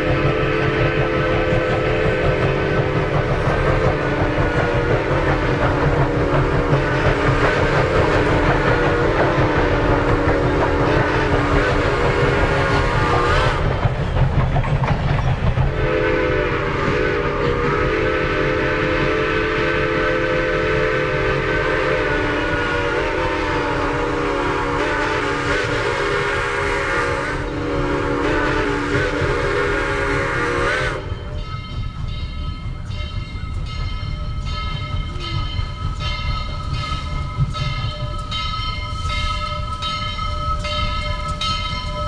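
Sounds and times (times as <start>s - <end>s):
steam whistle blasts: 0.0s - 13.8s, 15.7s - 31.5s
moving train rumble: 0.0s - 42.0s.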